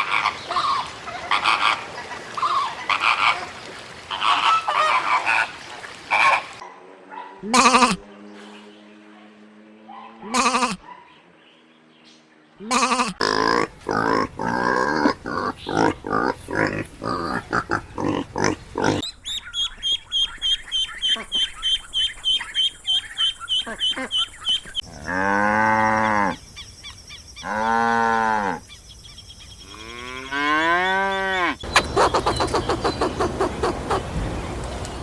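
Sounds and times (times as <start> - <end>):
animal calls: 0.0 - 6.6, 7.4 - 8.1, 10.2 - 11.2, 12.6 - 26.4, 29.7 - 35.0.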